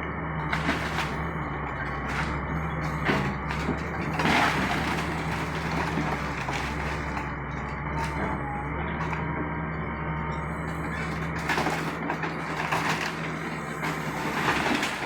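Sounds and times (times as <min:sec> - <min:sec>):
excavator diesel engine running: 0:00.0 - 0:15.0
timber crunching and cracking: 0:00.4 - 0:09.4.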